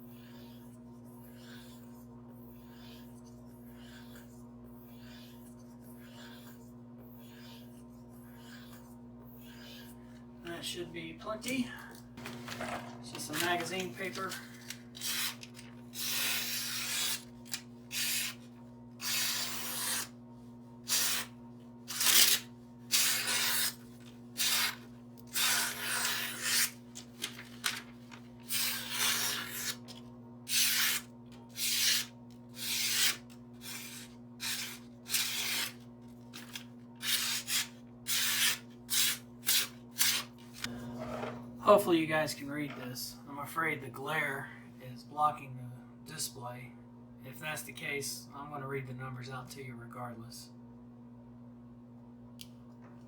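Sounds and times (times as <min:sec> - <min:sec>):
knife rasping across paper: 0:00.0 - 0:10.0, 0:13.2 - 0:18.4, 0:19.0 - 0:20.1, 0:20.8 - 0:40.3.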